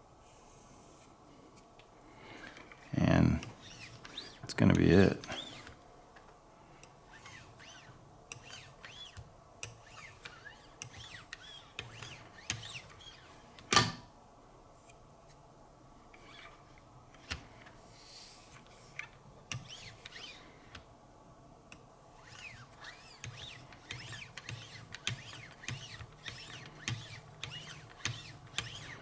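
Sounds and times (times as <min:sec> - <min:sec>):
faint squeaks: 0:09.8 - 0:13.5.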